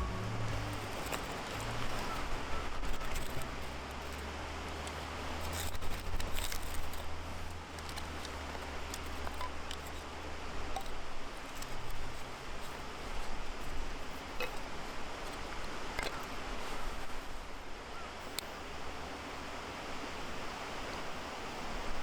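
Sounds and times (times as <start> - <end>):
steady low rumble: 0.0 - 5.4
small clicks and rustles: 0.5 - 18.6.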